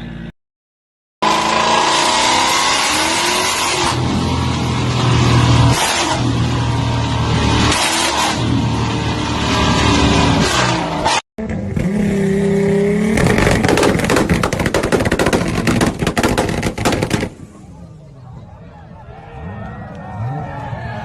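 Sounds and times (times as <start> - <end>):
car engine revving: 1.2 - 17.7.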